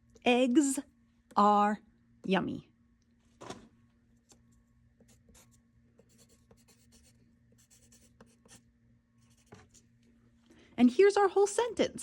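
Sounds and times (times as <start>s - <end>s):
pen scratching while writing: 5.0s - 8.6s, 9.2s - 9.9s.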